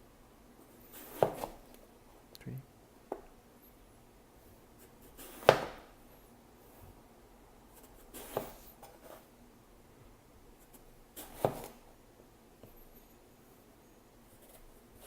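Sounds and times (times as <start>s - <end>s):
knife slicing eggplant: 1.0s - 1.7s.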